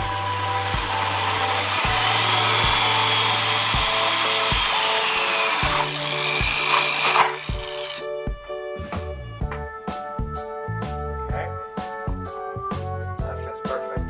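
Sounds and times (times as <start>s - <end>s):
power drill whining: 0.0s - 8.2s
background music with steady beat: 0.0s - 14.0s.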